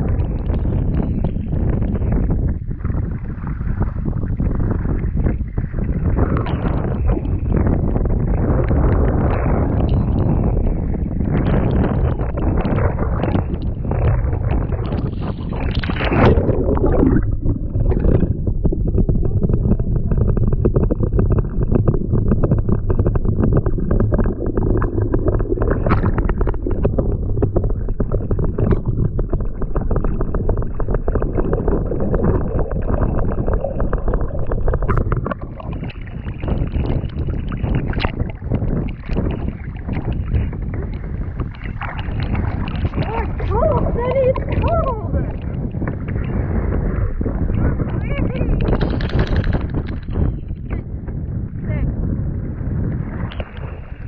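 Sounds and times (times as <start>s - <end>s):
wind noise on microphone: 0.0s - 54.0s
paddle splashing water: 12.2s - 50.8s.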